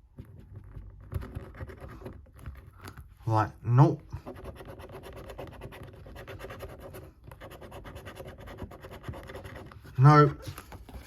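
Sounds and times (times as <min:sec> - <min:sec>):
coin scratching a scratchcard: 0:04.2 - 0:10.1.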